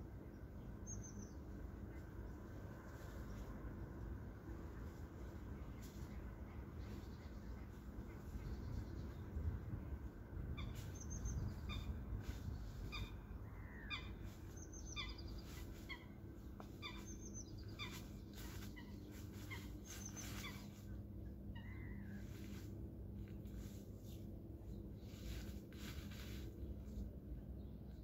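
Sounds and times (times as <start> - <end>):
steady low hum: 0.0 - 28.0
birds calling: 10.5 - 22.6.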